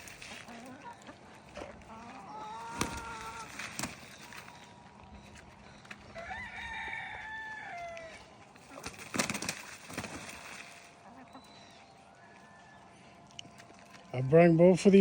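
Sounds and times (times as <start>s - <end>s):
rooster crowing: 6.1s - 8.3s, 12.1s - 13.0s.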